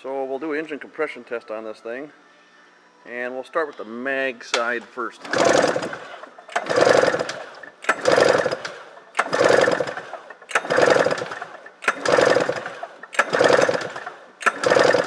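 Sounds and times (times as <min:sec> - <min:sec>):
recoil pull-starter click: 0:04.5 - 0:15.0
engine turning over whirr: 0:04.8 - 0:15.0.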